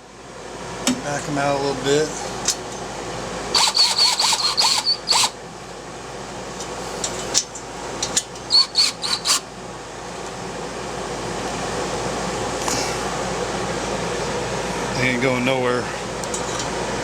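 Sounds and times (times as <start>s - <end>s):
air conditioner hum: 0.0s - 17.0s
cordless drill motor whine: 3.5s - 5.4s, 8.5s - 9.5s.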